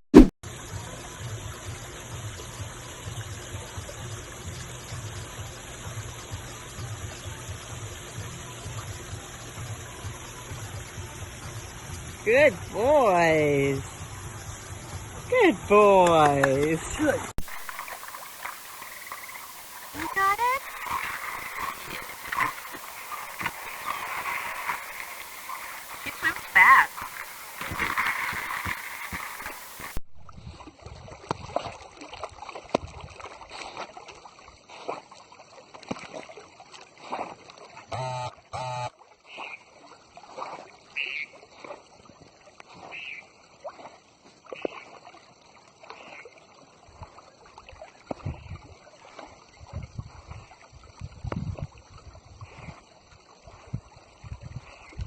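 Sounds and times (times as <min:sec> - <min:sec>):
water splashing from dogs swimming: 0:00.2 - 0:55.0.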